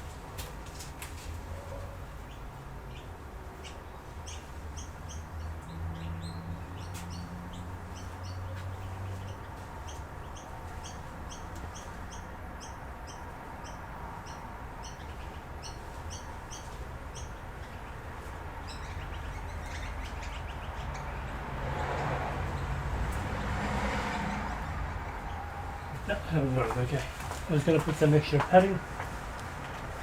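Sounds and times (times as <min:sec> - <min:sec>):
rustling handling noise: 0:26.0 - 0:30.0.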